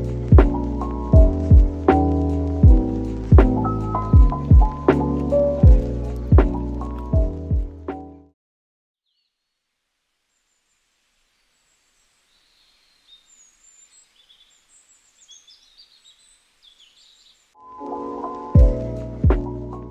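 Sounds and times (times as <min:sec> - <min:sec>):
faint birdsong chirps and whistles: 0:09.0 - 0:09.6, 0:10.3 - 0:17.6.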